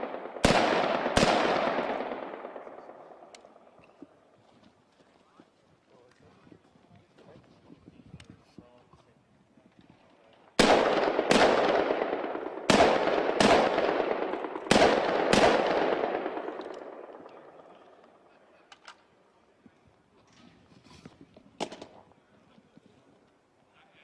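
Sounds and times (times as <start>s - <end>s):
rifle shots with echo: 0.0s - 3.8s, 10.6s - 18.3s, 21.6s - 22.0s.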